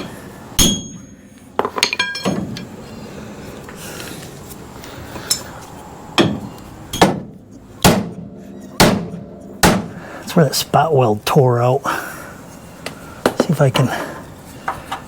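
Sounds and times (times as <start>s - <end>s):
hammer striking steel frame: 0.0s - 2.7s, 6.2s - 10.0s.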